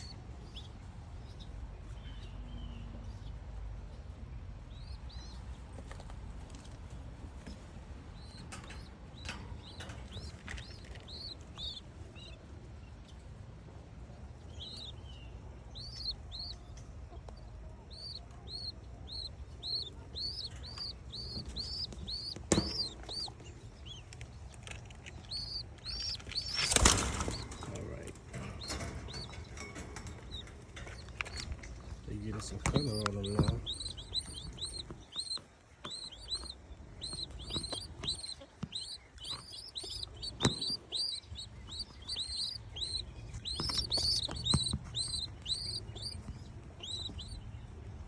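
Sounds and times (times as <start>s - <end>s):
squabs peeping: 8.2s - 12.4s, 14.4s - 48.0s
wings flapping: 18.5s - 46.2s.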